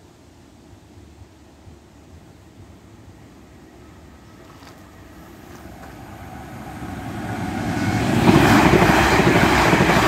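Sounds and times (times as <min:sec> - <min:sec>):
electric train rushing past: 0:02.8 - 0:10.0.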